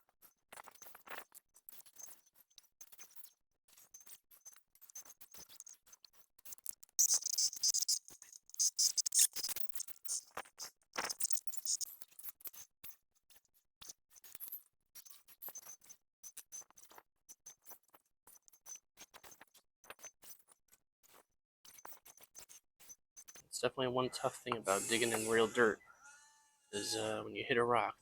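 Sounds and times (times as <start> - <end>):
faint high motor whine: 23.6 - 27.5.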